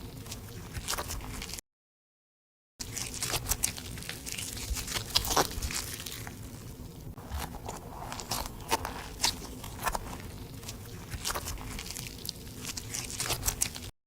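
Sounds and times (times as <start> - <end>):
slime kneaded by hand: 2.8 - 13.9
sticky crackles and air bubble pops: 2.9 - 6.4.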